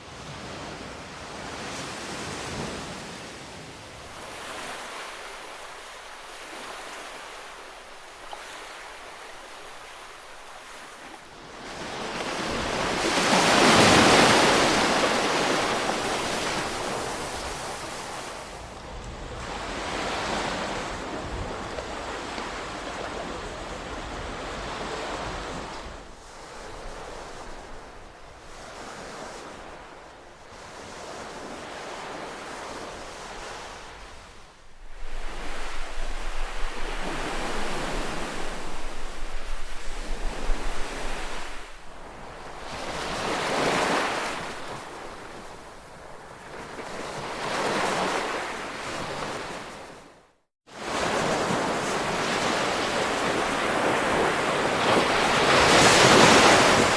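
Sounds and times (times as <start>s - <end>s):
ocean waves washing in: 1.3s - 50.1s, 50.7s - 56.9s
wind rumble on microphone: 33.4s - 43.4s.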